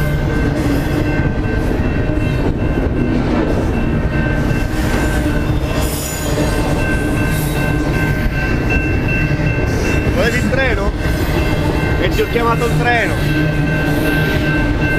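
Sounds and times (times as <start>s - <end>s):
train rumbling past: 0.0s - 14.9s
wheels squealing on rails: 0.0s - 14.9s.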